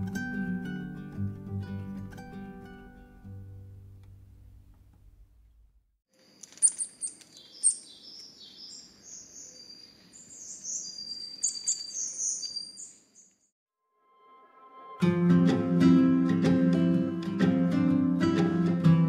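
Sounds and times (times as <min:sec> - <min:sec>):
small birds chirping: 0:06.2 - 0:13.5.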